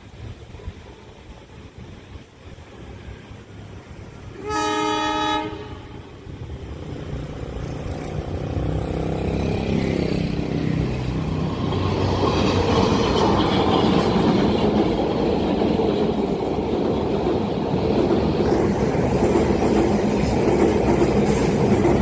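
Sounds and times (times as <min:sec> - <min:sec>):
train rumbling: 0:00.0 - 0:22.0
train horn blast: 0:04.3 - 0:06.2.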